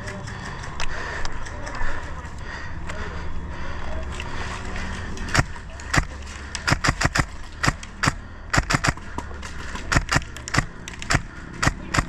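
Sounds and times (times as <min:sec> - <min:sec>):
airsoft gun shots: 0:06.7 - 0:09.1.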